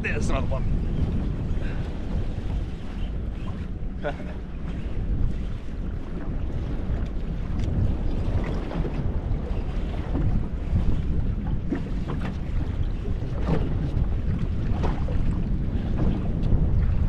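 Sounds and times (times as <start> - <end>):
water lapping against hull: 0.0 - 17.0
wind buffeting microphone: 0.0 - 17.0
splashes and knocks: 11.6 - 17.0.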